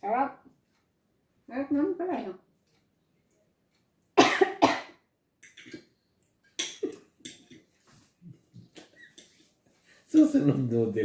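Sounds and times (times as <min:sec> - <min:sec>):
person coughing: 0:04.2 - 0:05.0
throat-clearing coughs: 0:04.2 - 0:05.0.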